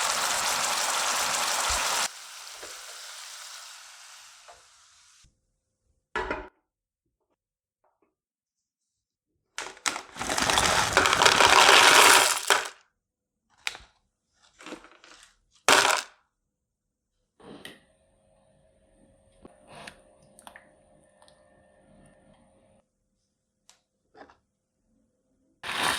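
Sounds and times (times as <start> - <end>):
loud scraping: 10.2 - 12.7.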